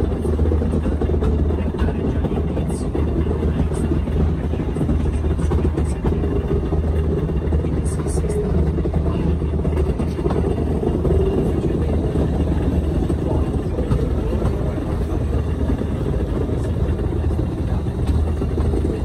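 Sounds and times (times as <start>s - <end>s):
rack railway train rumbling: 0.0s - 19.0s.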